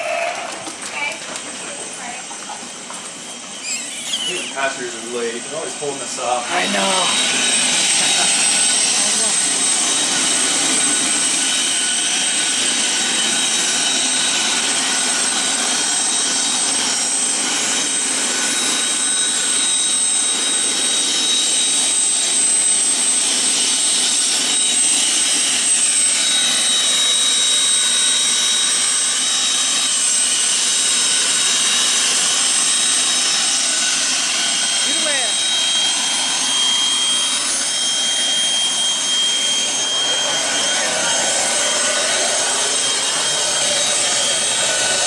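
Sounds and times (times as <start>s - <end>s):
high-pitched engine whine: 0.0s - 45.0s
jet engines heard in cabin: 0.0s - 45.0s.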